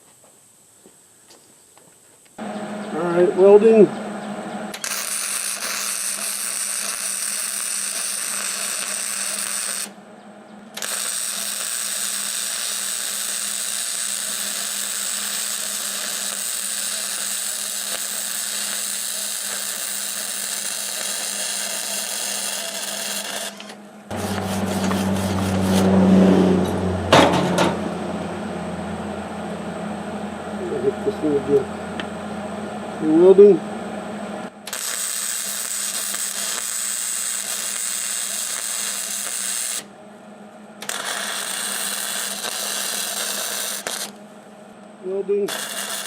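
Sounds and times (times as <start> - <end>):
welder arc crackling: 4.7 - 10.0, 10.7 - 26.0, 34.5 - 39.9, 40.8 - 46.0
low steady hum: 9.9 - 10.8, 23.6 - 34.7, 39.9 - 40.9, 43.8 - 45.5.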